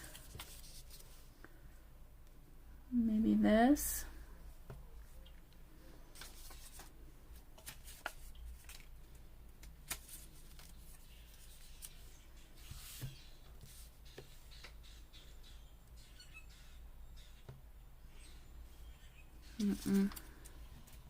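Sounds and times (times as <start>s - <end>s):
paper rustling: 0.0s - 1.2s, 6.1s - 6.9s, 7.6s - 8.9s, 9.6s - 13.9s.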